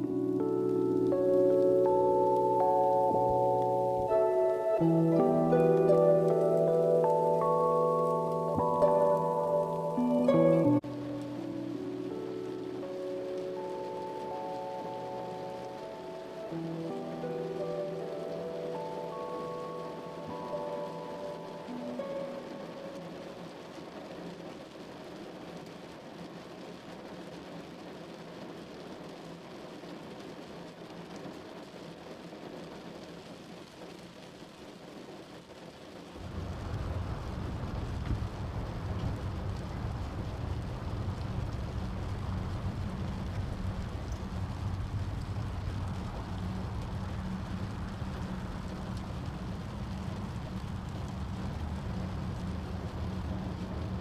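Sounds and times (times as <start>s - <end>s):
steady wind-like rushing: 36.2s - 54.0s.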